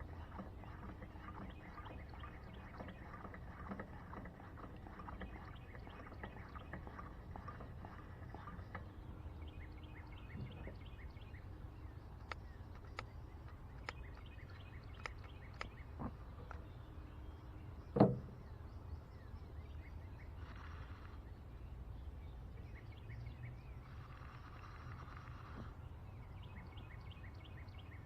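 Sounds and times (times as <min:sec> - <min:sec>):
sharp clicks: 0:15.0 - 0:15.8.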